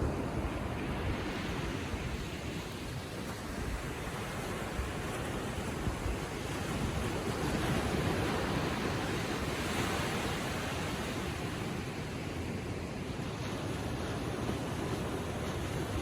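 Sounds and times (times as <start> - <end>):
ocean waves lapping on shore: 0.0 - 16.0.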